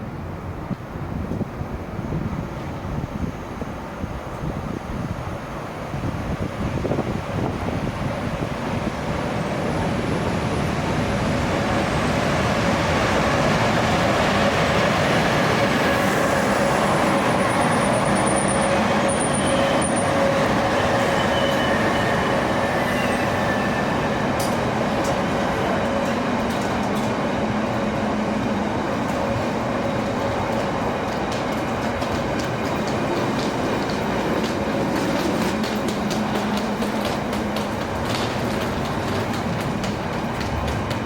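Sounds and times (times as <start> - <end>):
train rolling past on rails: 0.0 - 41.0
faint high wheel squeal: 15.8 - 24.3.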